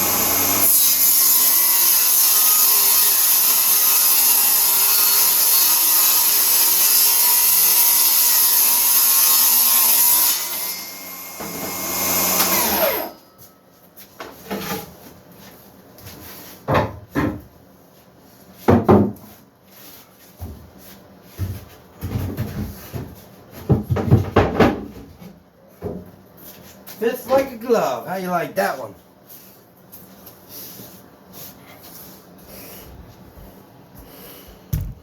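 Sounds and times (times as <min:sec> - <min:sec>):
power saw cutting wood: 0:00.0 - 0:13.2
wooden parts knocking: 0:34.7 - 0:35.0.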